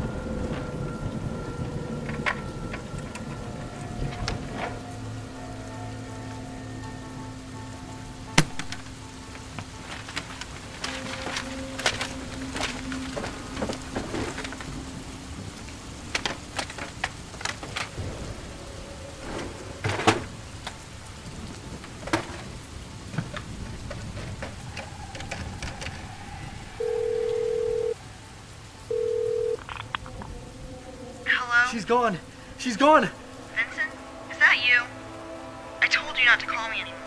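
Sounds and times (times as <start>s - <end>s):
background hiss: 0.0s - 37.0s
papers and objects rustling on desk: 8.6s - 15.5s, 16.1s - 18.0s
telephone tone through handset: 26.8s - 28.0s, 28.9s - 29.6s.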